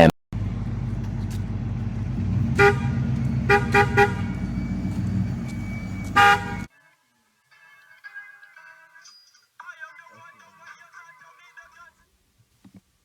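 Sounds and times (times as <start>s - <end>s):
low engine rumble: 0.0s - 6.7s
car horn honking: 2.0s - 6.7s.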